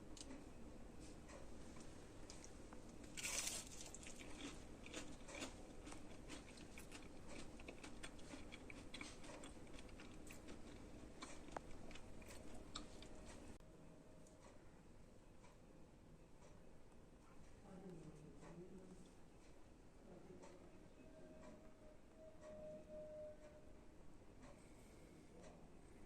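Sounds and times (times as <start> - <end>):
fried snacks crunching: 3.1 - 13.1.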